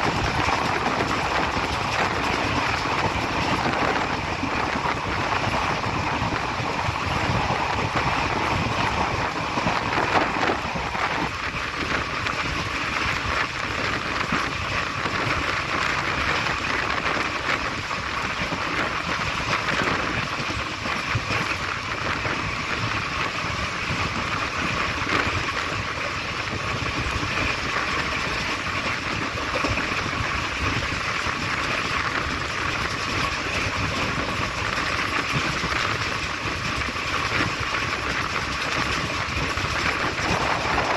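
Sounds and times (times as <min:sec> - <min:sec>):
train wheels on rails: 0:00.0 - 0:40.9
wind rushing past: 0:39.7 - 0:40.9.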